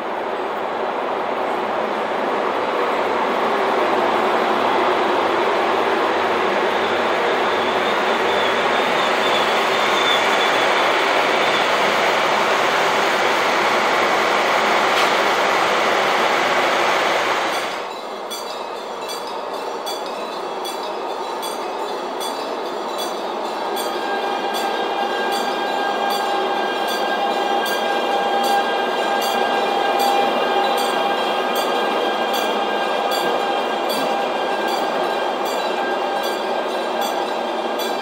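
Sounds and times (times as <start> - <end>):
train wheels rushing on rail: 0.0 - 38.0
level crossing warning bell: 17.9 - 38.0.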